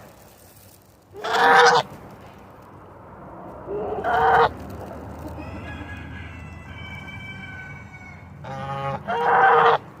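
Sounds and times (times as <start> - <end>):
goose honking: 1.2 - 1.8, 7.9 - 9.8.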